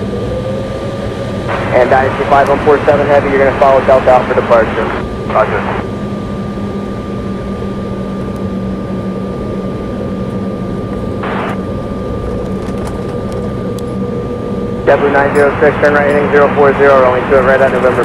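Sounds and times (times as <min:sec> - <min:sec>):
jet engines idling: 0:00.0 - 0:18.0
radio noise burst: 0:01.5 - 0:05.8, 0:11.2 - 0:11.6, 0:14.9 - 0:18.0
thin steady tone: 0:14.0 - 0:17.7.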